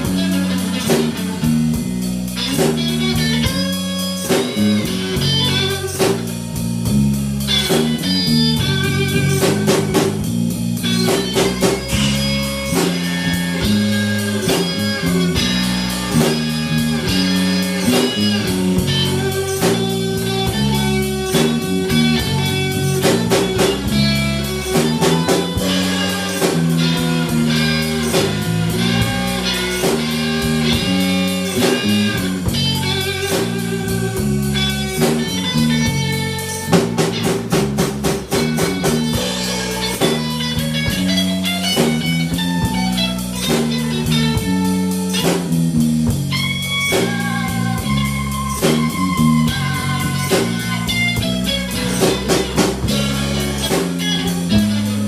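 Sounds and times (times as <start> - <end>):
bass: 0.0 - 55.0
drum kit: 0.0 - 55.0
electric guitar with bent notes: 0.0 - 55.0.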